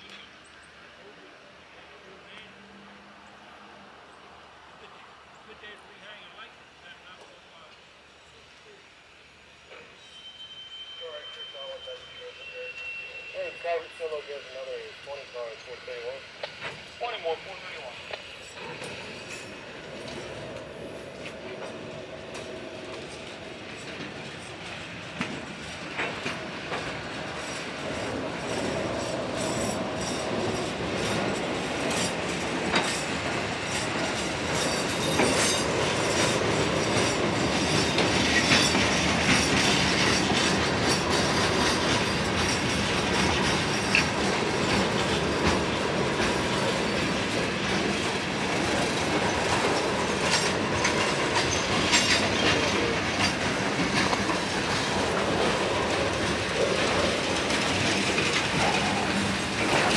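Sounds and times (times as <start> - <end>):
train rolling slowly past: 0.0 - 59.9
wheel squeal: 9.7 - 14.2, 50.3 - 53.4
wheels clicking over rail joints: 18.1 - 59.9.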